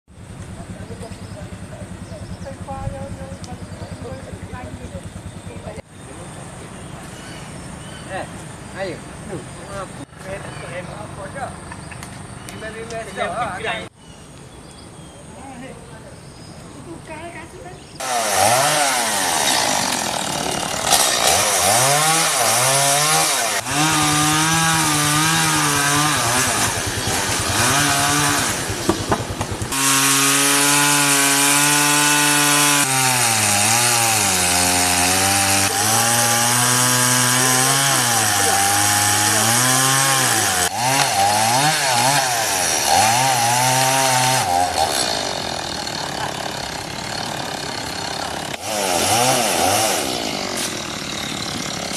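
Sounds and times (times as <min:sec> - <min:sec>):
chainsaw cutting wood: 0:18.0 - 0:51.9.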